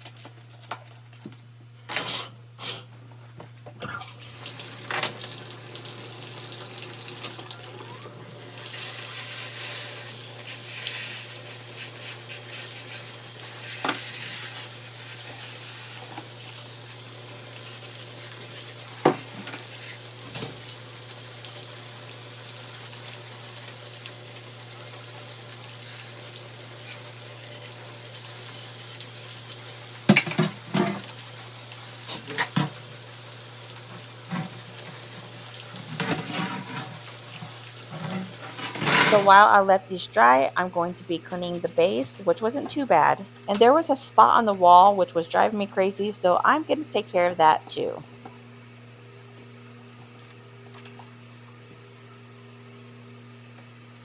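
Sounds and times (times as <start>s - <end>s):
tap running: 4.4s - 8.8s, 13.5s - 14.4s, 18.4s - 20.7s, 32.0s - 32.8s, 33.9s - 39.3s.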